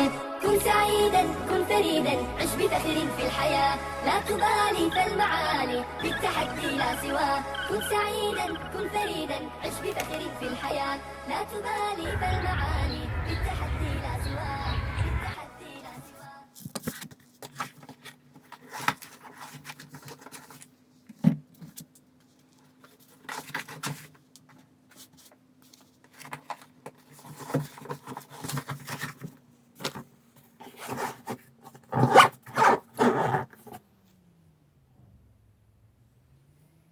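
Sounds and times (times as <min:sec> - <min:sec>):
steady low hum: 0:12.0 - 0:15.8
zipper-like scrapes: 0:30.8 - 0:33.8.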